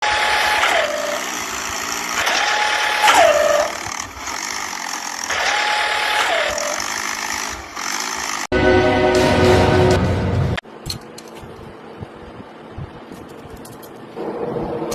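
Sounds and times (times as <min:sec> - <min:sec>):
machine whine: 0:08.5 - 0:14.9.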